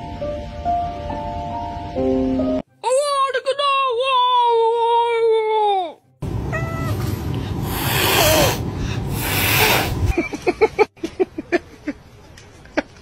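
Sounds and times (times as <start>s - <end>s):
cat hissing: 6.5s - 10.1s.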